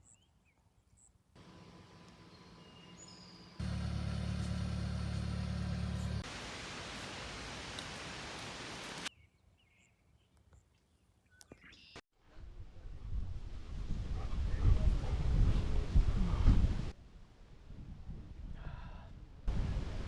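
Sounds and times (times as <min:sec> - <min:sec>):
car engine hum: 0:01.4 - 0:07.5
rushing noise of moving car: 0:03.6 - 0:06.4.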